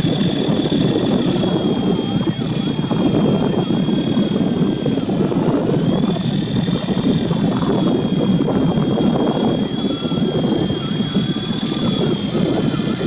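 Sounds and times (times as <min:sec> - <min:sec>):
rc helicopter motor whine: 0:00.0 - 0:13.0.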